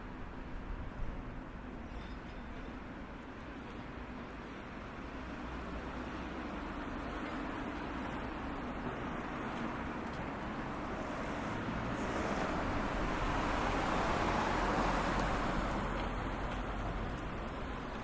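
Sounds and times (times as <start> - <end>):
vehicle passing by: 10.9 - 17.2.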